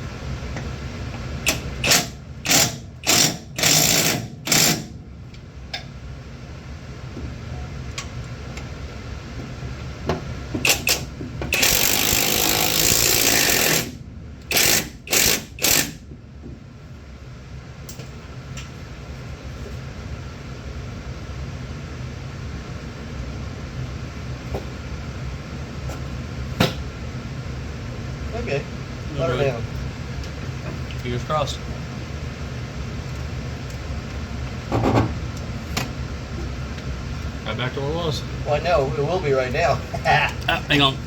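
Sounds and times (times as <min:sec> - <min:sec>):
impact wrench bursts: 0:01.5 - 0:05.0, 0:10.6 - 0:16.0.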